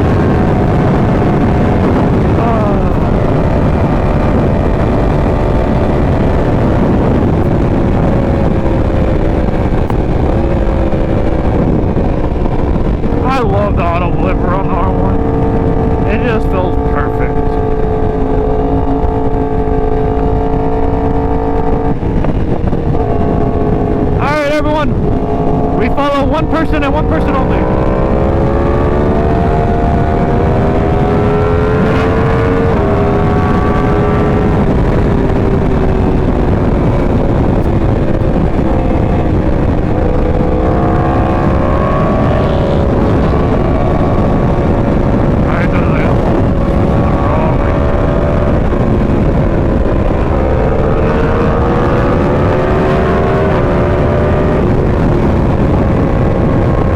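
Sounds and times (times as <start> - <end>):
motorcycle engine cruising: 0.0 - 56.9
wind rush over microphone: 0.0 - 56.9.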